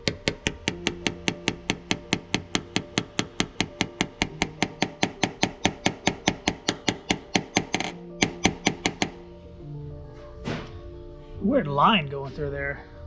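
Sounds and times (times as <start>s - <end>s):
hammer tapping on sheet metal: 0.0s - 9.2s.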